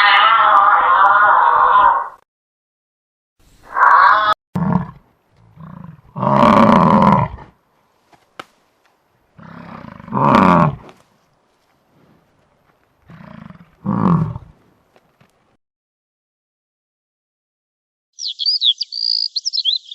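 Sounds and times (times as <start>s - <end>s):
big cat roaring and growling: 0.0s - 2.2s, 3.6s - 7.6s, 9.4s - 10.9s, 13.0s - 14.6s.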